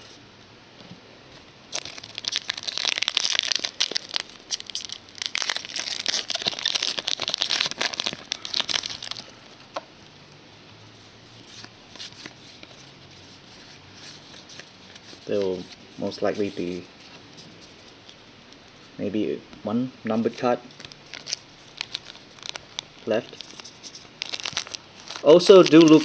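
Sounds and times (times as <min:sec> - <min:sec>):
plastic wrapper crinkling: 0:01.7 - 0:09.6, 0:20.7 - 0:26.0.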